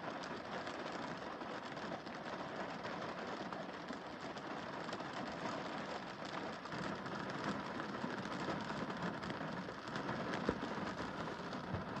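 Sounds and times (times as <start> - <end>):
rain on a car windscreen: 0.0 - 12.0.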